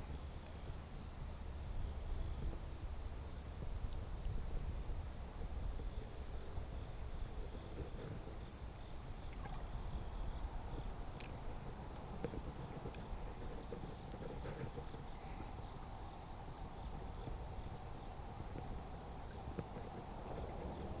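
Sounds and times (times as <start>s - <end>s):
insects trilling: 4.3s - 21.0s.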